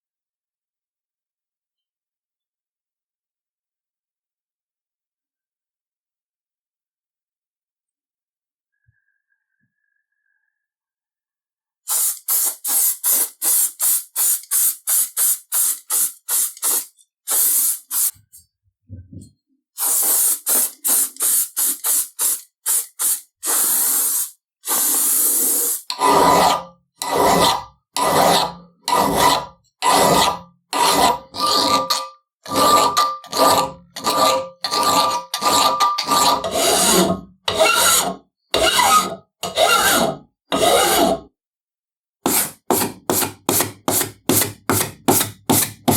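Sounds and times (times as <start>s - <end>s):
short hissing strokes: 11.9s - 18.1s, 19.8s - 25.9s
file rasping on steel: 25.4s - 41.3s, 42.2s - 45.9s.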